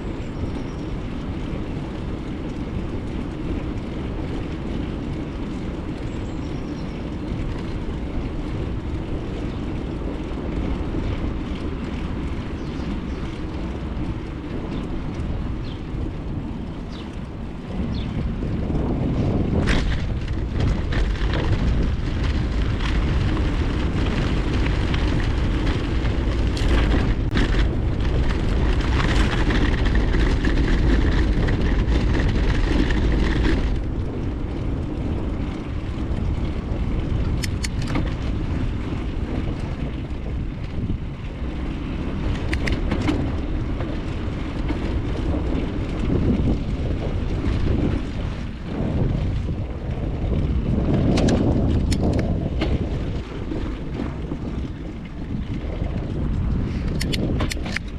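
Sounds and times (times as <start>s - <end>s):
tyre and road noise: 0.0s - 57.9s
wind on microphone: 0.0s - 57.9s
sharp clicks or rattles: 37.4s - 38.2s, 42.3s - 43.4s, 51.1s - 52.7s, 56.8s - 57.9s.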